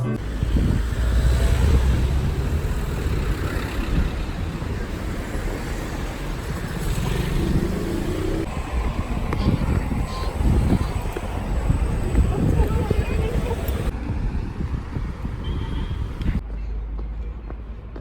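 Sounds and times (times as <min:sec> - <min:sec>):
vehicle low rumble: 0:00.2 - 0:16.6.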